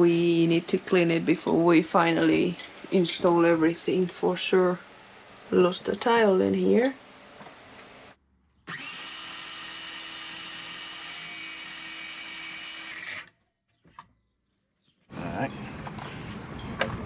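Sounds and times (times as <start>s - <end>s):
small electric motor running: 8.7s - 13.4s.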